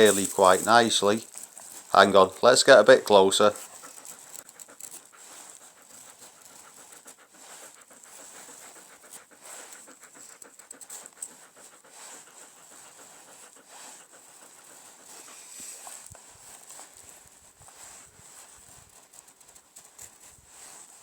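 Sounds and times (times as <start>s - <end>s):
knife scraping wooden stick: 0.0s - 2.2s
dog panting: 0.0s - 21.0s.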